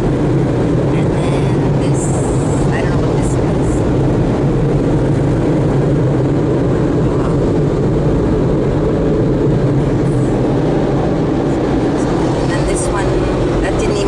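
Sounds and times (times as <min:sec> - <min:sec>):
car wash machinery rumble: 0:00.0 - 0:14.0.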